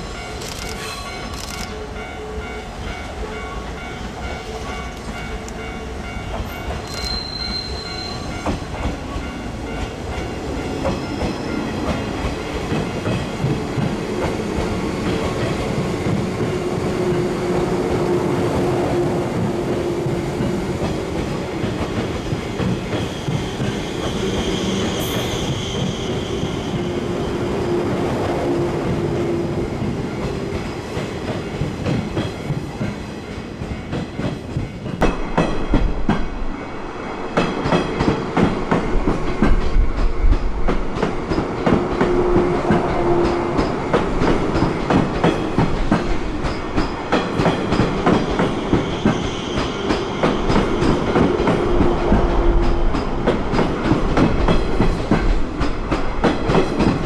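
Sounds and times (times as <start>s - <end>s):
wheel squeal: 6.8s - 8.4s.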